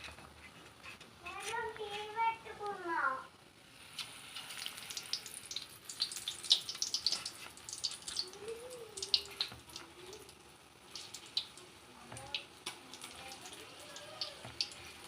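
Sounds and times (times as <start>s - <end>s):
hot oil sizzling with pops: 3.6s - 15.0s.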